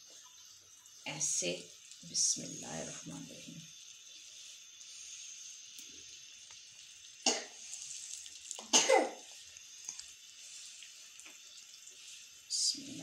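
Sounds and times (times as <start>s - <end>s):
flatbread sizzling in a pan: 0.0s - 13.0s
person coughing: 8.7s - 9.2s.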